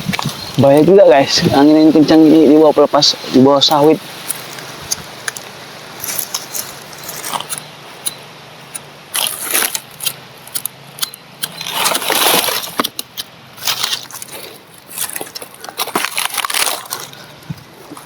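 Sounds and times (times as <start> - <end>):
strong wind gusts: 0.0 - 6.1
dry fibre crackling and rustling: 0.0 - 18.0.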